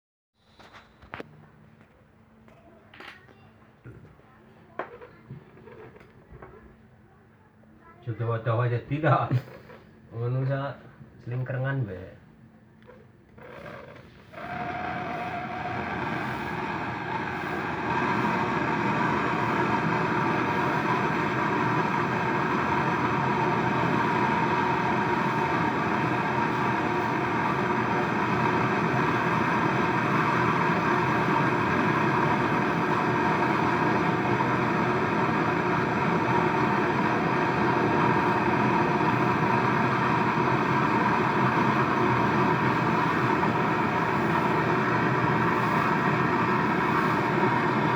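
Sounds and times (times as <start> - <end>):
gas torch hissing: 12.9 - 47.9.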